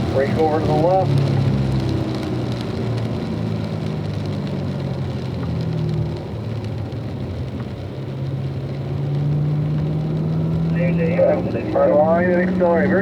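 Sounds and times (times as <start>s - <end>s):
rain and tyre spray hiss: 0.0s - 13.0s
car engine pulling: 7.5s - 13.0s.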